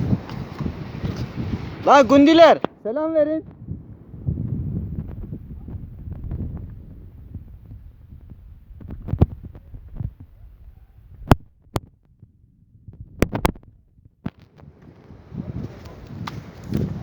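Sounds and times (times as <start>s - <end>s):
microphone handling noise: 0.0s - 2.8s, 3.4s - 17.0s
stones knocking underfoot: 13.2s - 14.8s.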